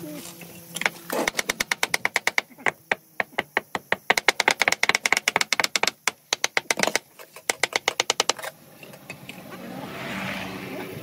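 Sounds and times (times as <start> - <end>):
rapid sharp tapping: 0.8 - 8.4.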